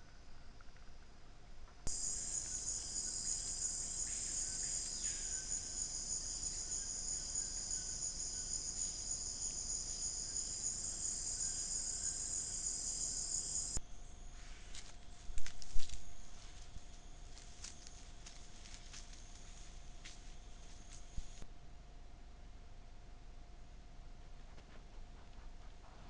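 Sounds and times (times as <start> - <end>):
crickets and insects chirping: 1.9 - 21.4.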